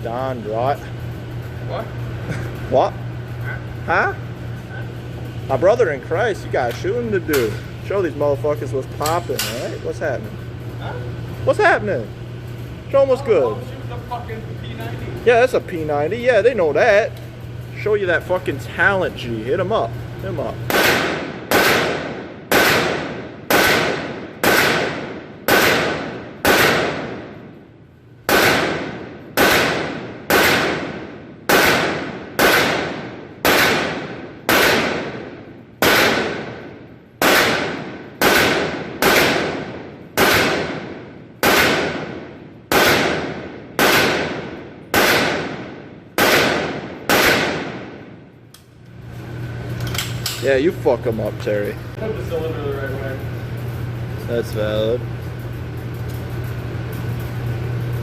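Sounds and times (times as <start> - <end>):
gunshots with echo: 20.7 - 27.5, 28.3 - 48.2.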